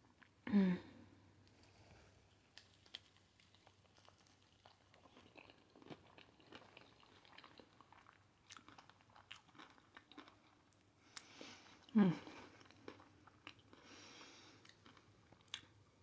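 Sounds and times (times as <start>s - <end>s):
person chewing crunchy food: 2.3s - 11.3s, 12.6s - 15.8s.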